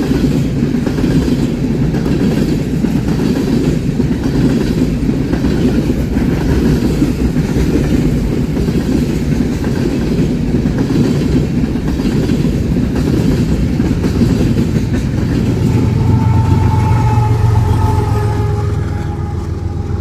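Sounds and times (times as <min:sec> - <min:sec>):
railroad cars rolling past: 0:00.0 - 0:20.0
steady high tone: 0:15.2 - 0:20.0.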